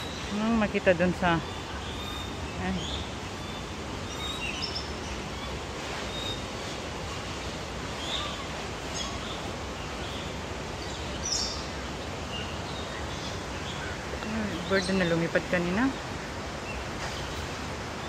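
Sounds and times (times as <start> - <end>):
birds chirping: 0.0 - 18.0
steady background hiss: 0.0 - 18.0.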